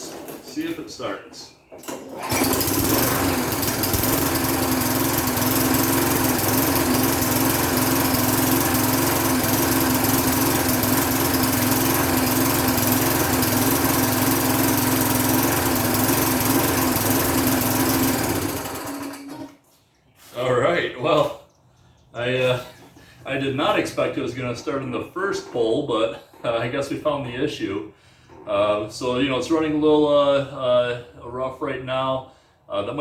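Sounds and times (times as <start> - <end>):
lawn mower engine running rough: 1.9 - 19.6.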